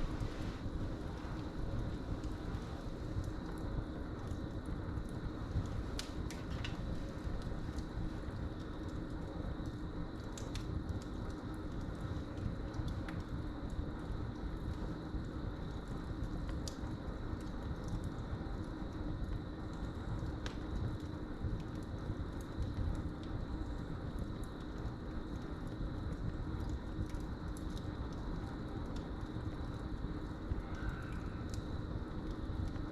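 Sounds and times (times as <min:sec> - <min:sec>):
wood fire crackling: 0:00.0 - 0:32.9
crickets trilling: 0:29.8 - 0:32.6.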